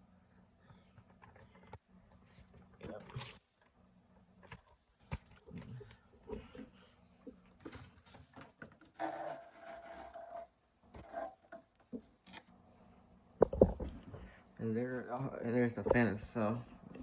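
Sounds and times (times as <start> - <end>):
rustling and scraping: 4.5 - 12.5.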